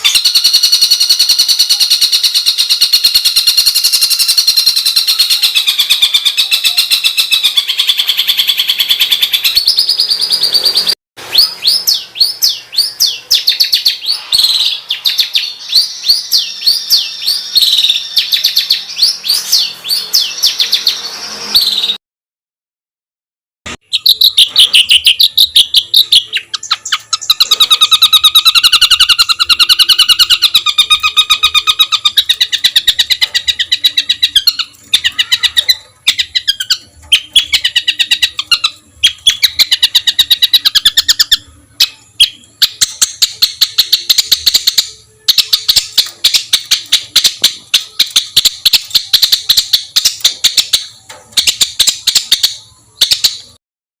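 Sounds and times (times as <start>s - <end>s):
songbird rapid harsh song: 23.8s - 53.6s.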